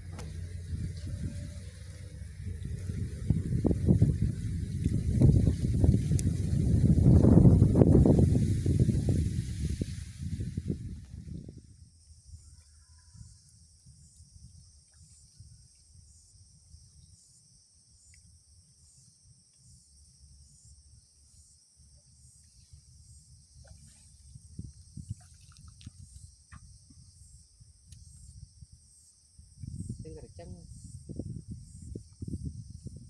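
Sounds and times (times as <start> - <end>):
low rumble: 0.0 - 12.2
faint ticks: 27.8 - 28.2.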